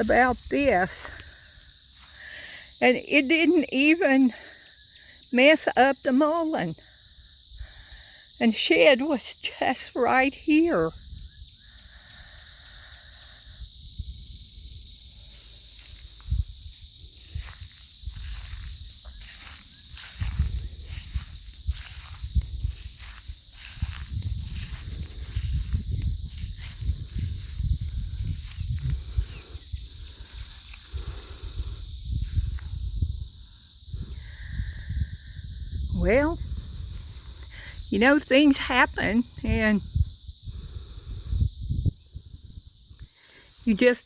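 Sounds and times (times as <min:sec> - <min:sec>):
footsteps rustling through grass: 0:00.0 - 0:02.2, 0:14.2 - 0:34.1
high-pitched insect chorus: 0:00.0 - 0:44.0.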